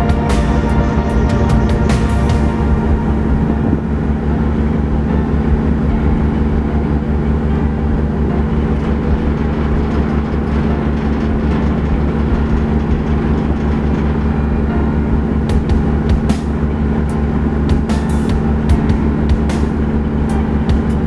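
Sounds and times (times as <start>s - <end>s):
ferry diesel engines droning: 0.0s - 4.9s.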